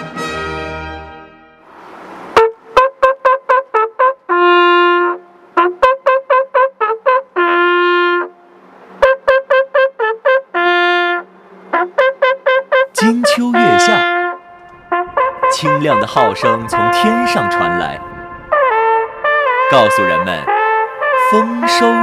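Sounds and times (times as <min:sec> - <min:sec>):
trumpet call: 0:02.4 - 0:22.0.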